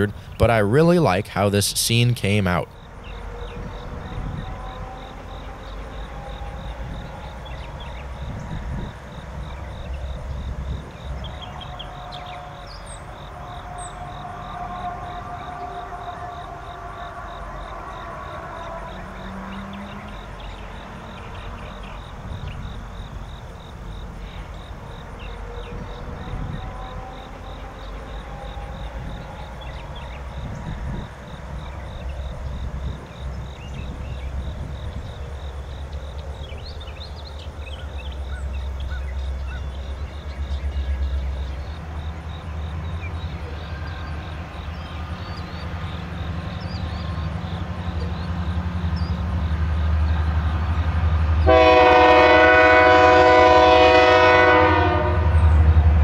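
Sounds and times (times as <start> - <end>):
insects chirping: 0.0 - 56.0
locomotive engine rumble: 0.0 - 56.0.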